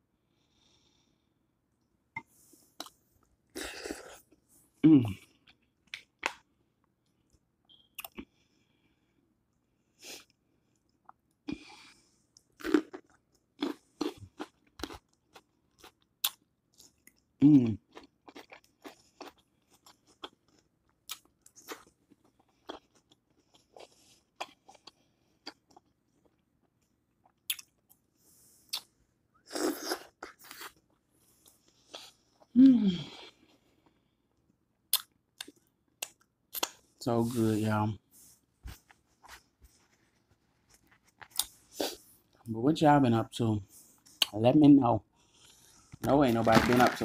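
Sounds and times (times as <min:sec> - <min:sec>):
wet chewing and lip smacks: 0:28.7 - 0:28.9.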